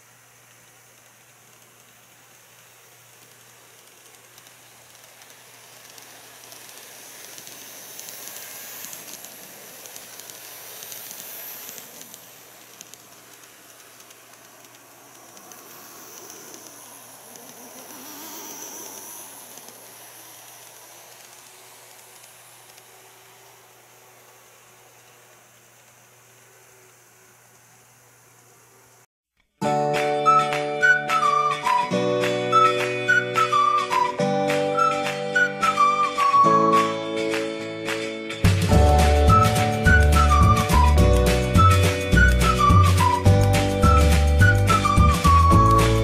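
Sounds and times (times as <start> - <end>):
model trains rumbling on track: 0.0 - 27.1, 38.4 - 46.0
faint rail-joint clicks: 0.0 - 27.7.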